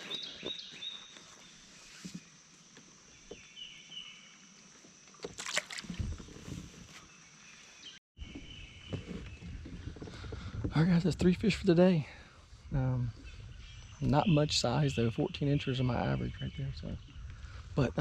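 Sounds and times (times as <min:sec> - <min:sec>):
bird chirping: 0:03.0 - 0:04.4, 0:07.0 - 0:17.8
water splash: 0:05.2 - 0:06.6.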